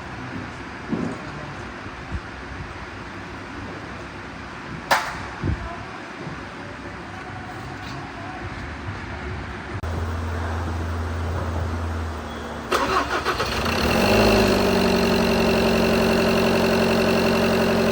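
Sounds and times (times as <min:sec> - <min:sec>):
diesel engine cranking and idling: 0:09.6 - 0:17.9.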